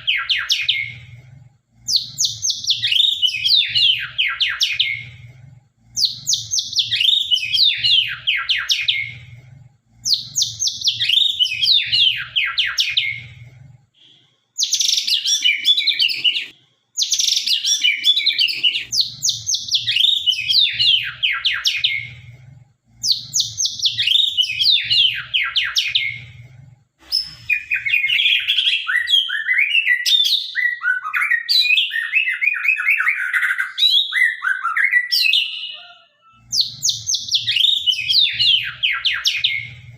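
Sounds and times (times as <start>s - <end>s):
songbird singing: 23.0s - 26.3s.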